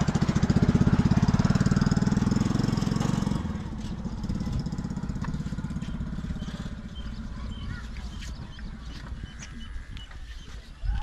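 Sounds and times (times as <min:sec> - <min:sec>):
stationary diesel engine beating: 0:00.0 - 0:09.4
birds chirping: 0:04.2 - 0:11.0.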